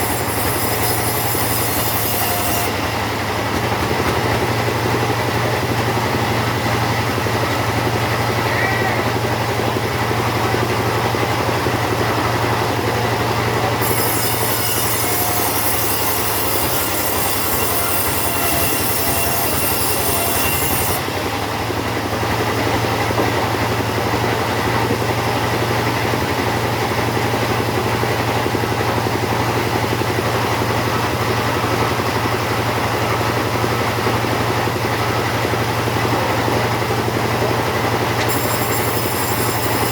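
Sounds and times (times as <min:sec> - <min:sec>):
chainsaw sawing wood: 0:00.0 - 0:07.0, 0:13.4 - 0:39.9.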